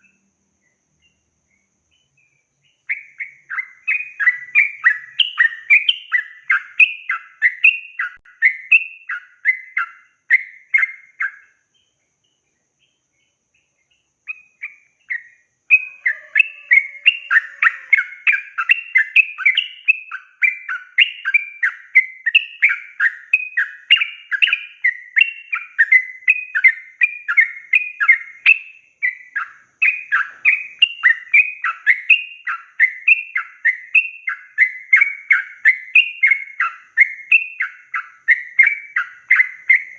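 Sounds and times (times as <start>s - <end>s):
bird singing fast repeated phrases: 0.0s - 39.9s.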